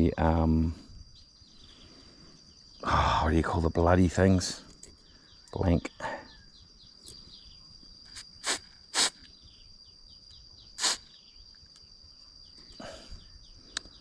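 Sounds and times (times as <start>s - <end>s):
high insect whine: 0.0s - 14.0s
puffs of air blown: 8.1s - 9.3s, 10.8s - 11.1s.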